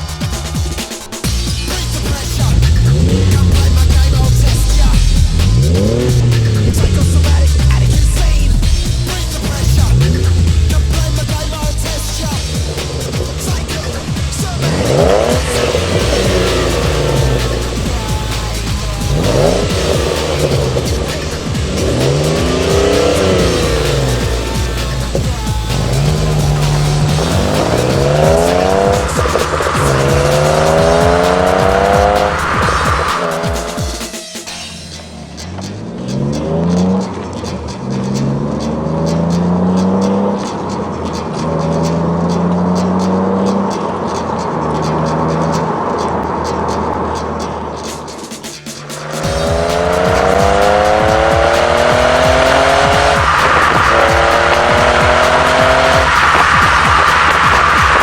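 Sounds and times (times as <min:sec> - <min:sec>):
background music: 0:00.0 - 0:58.0
car engine accelerating: 0:00.0 - 0:58.0.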